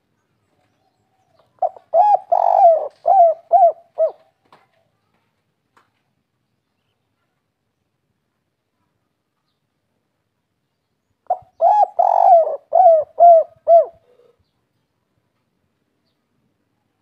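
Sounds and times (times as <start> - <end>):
dove cooing: 1.6 - 4.3, 11.3 - 14.4.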